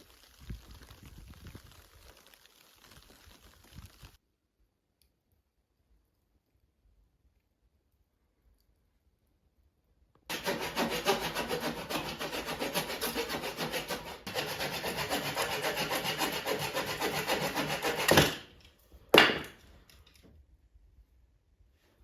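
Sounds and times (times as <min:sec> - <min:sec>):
hand saw cutting wood: 0:10.3 - 0:18.6.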